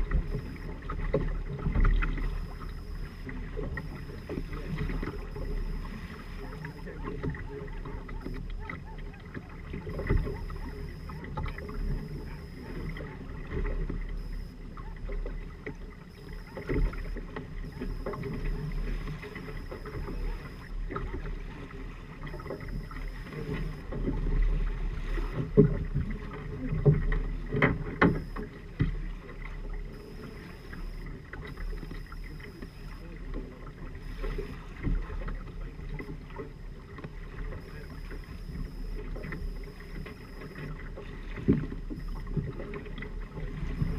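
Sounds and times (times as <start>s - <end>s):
steady low rumble: 0.0s - 7.0s
water rushing along hulls: 0.0s - 43.9s.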